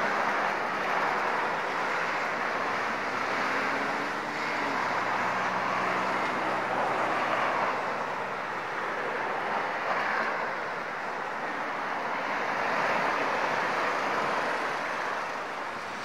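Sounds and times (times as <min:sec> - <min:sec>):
train rolling along track: 0:00.0 - 0:16.0.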